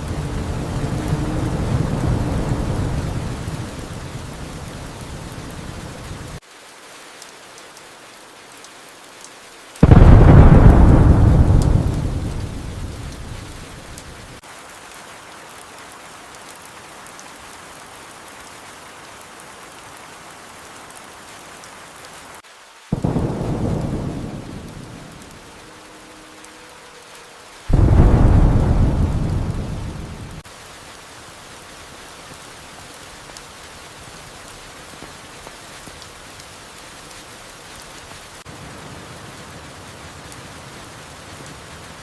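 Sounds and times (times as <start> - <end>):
thunder rumbling: 0.0 - 6.4, 9.8 - 14.4, 22.9 - 26.4, 27.7 - 30.4
steady rain: 0.0 - 42.0.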